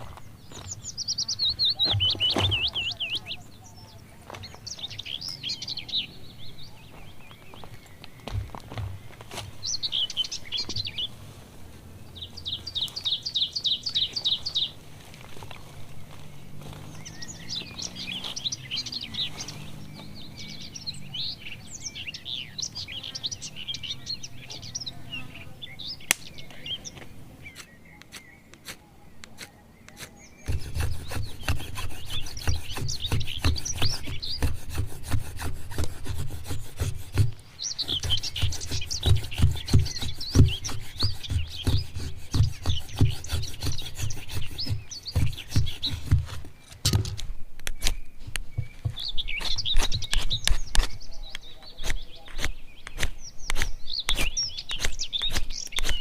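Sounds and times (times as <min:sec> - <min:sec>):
forest birds singing: 0:00.0 - 0:56.0
fast bird trill: 0:01.0 - 0:03.4, 0:29.4 - 0:46.4
rough rhythmic scraping: 0:01.6 - 0:05.5, 0:06.8 - 0:56.0.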